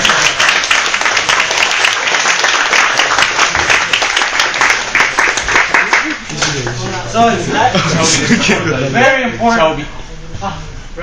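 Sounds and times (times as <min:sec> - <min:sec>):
group of people applauding: 0:00.0 - 0:06.8.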